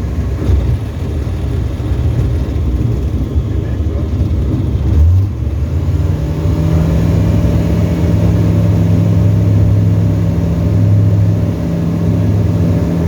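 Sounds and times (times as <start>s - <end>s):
light aircraft engine droning: 0.0s - 13.0s.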